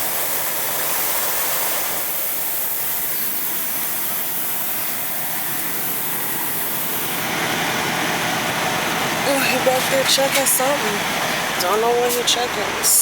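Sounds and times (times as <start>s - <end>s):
compressed air hissing: 0.0s - 7.3s.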